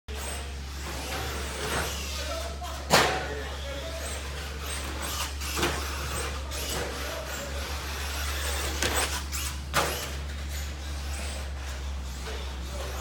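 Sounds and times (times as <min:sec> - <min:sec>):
rc truck tyres on track: 0:00.1 - 0:13.0
rc truck electric motor: 0:03.5 - 0:13.0.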